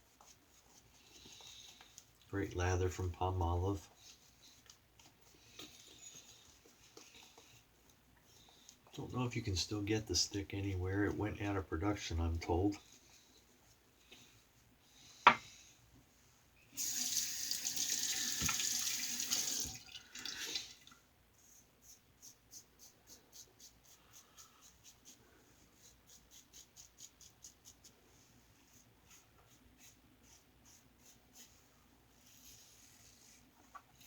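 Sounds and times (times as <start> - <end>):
sink tap running: 16.8 - 19.9.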